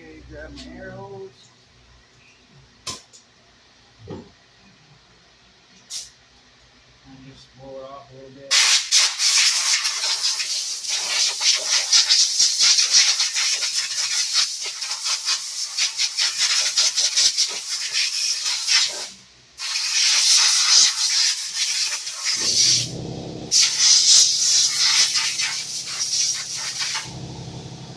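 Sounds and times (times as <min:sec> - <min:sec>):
compressed air blow gun hissing: 0:13.3 - 0:27.9.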